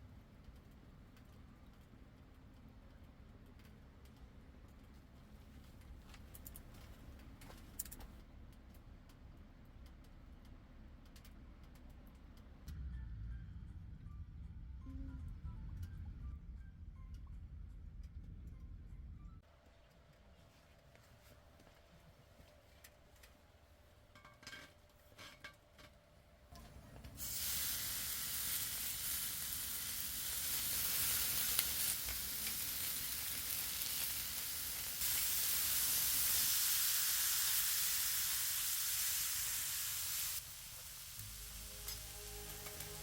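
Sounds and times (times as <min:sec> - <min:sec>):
food sizzling in grill pan: 0:27.2 - 0:43.0.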